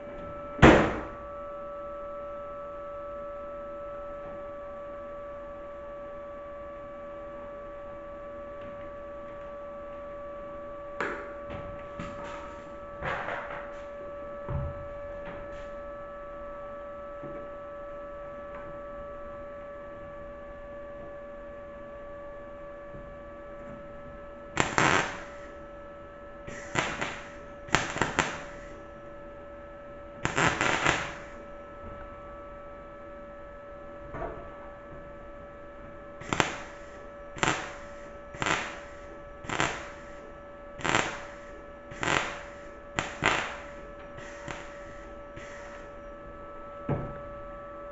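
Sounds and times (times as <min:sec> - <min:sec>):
steady hum: 0:00.0 - 0:47.9
mig welding crackle: 0:12.0 - 0:13.9, 0:24.5 - 0:25.6, 0:26.5 - 0:28.9, 0:30.2 - 0:31.5, 0:36.2 - 0:46.0.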